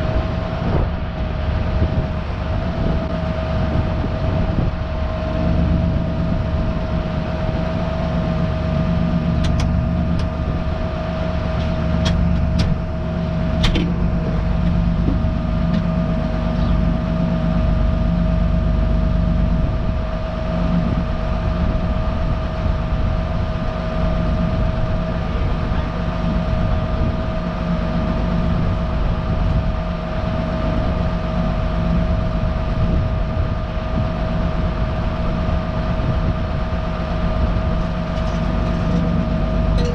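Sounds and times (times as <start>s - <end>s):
high whine: 0.0s - 39.9s
tractor engine running: 36.9s - 39.9s.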